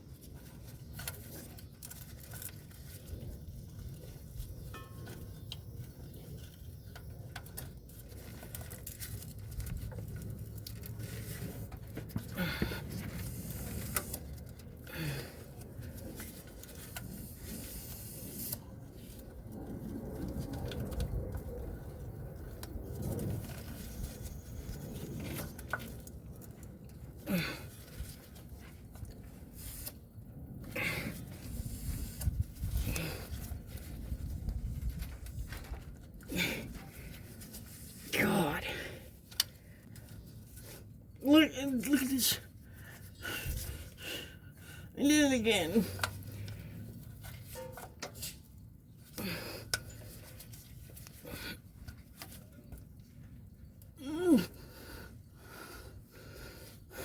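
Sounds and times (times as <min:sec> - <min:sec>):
tools clinking and scraping: 0:04.6 - 0:05.5, 0:47.1 - 0:48.6.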